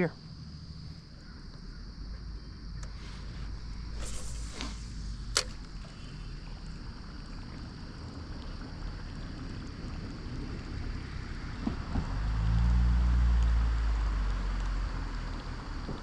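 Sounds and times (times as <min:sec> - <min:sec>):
wind rumble on microphone: 0:00.2 - 0:16.0
fishing rod swish: 0:03.0 - 0:06.0
sharp click: 0:04.0 - 0:05.8.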